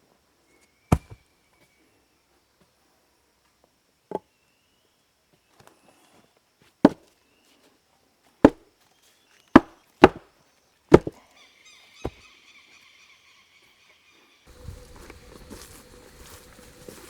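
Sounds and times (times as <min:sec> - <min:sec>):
sharp blows striking wood: 0:09.6 - 0:10.2, 0:10.9 - 0:11.1.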